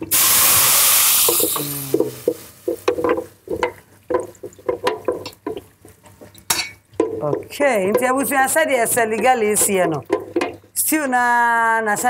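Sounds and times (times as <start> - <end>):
food sizzling in hot oil: 0.0 - 3.3
knocks and scrapes in pot: 1.3 - 10.8.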